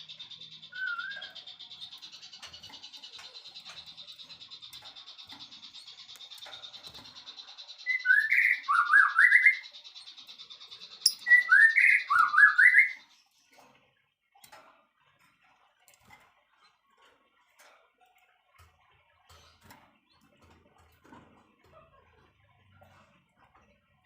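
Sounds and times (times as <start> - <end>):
songbird whistling phrase: 0.7 - 1.4, 11.1 - 13.0.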